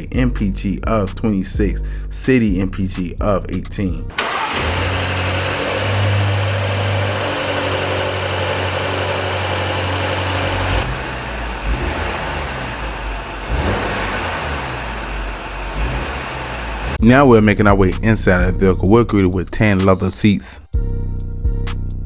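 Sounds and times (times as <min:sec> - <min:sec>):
car engine idling: 0:04.1 - 0:19.5.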